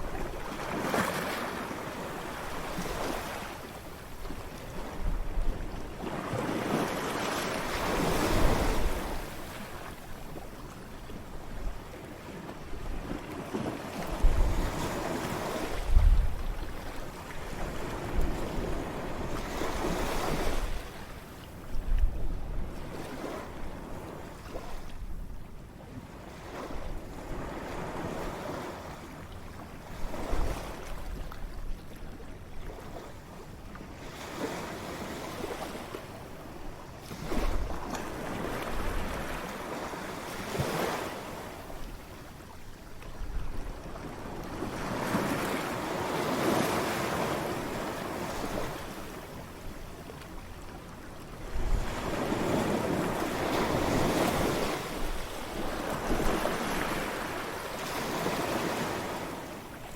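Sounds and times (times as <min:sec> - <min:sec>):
ocean waves breaking: 0:00.0 - 0:10.7, 0:43.8 - 0:51.0, 0:51.6 - 0:59.9
wind rumble on microphone: 0:00.0 - 0:29.0, 0:29.6 - 0:59.9.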